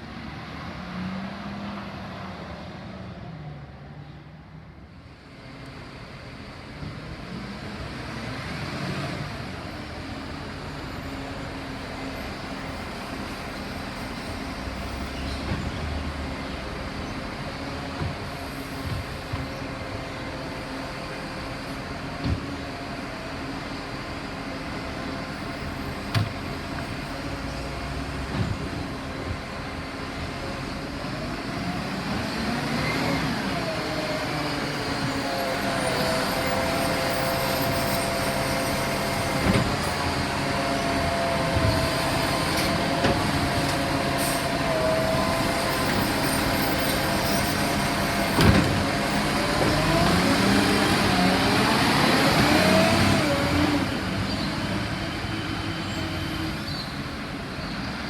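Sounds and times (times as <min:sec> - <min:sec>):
hydraulic whine: 0:25.2 - 0:57.2.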